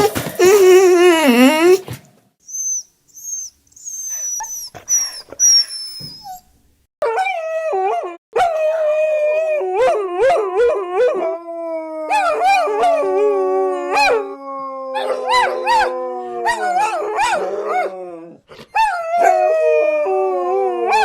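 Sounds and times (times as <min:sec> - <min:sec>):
dogs howling: 0:00.0 - 0:01.8, 0:09.2 - 0:21.0
short high chirping squeaks: 0:02.5 - 0:06.4.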